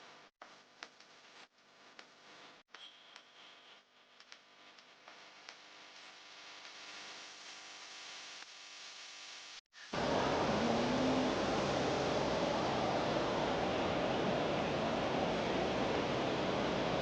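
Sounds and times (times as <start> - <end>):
low even hiss: 6.8 - 17.0.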